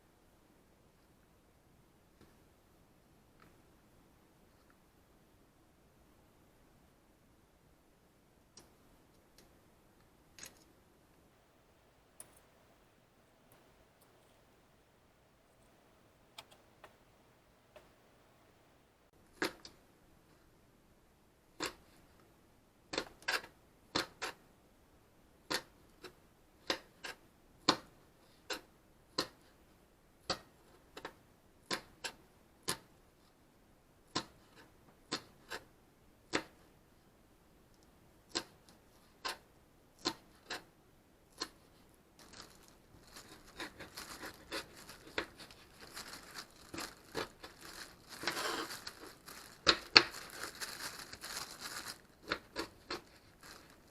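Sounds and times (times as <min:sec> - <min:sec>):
dense crackling: 0:11.4 - 0:19.1.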